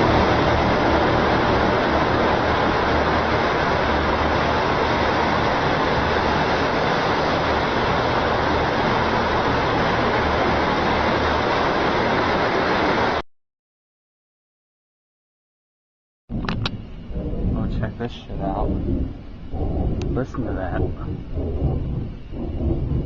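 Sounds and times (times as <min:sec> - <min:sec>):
low hum: 0:00.0 - 0:13.2, 0:16.3 - 0:23.0
rumbling roar: 0:16.3 - 0:23.0.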